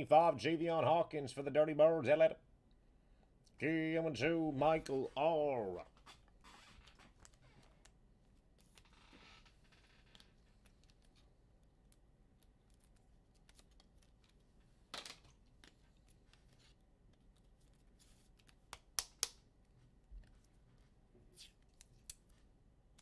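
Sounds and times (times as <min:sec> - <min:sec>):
trading cards rustling: 0:09.9 - 0:23.0.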